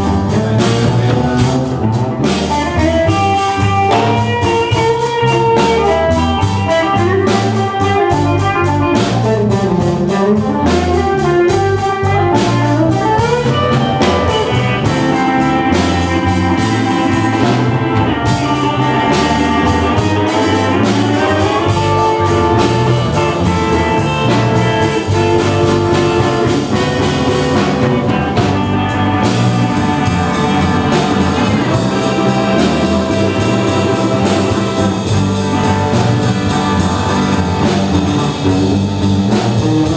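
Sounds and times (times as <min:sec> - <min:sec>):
live blues band playing: 0:00.0 - 0:39.9.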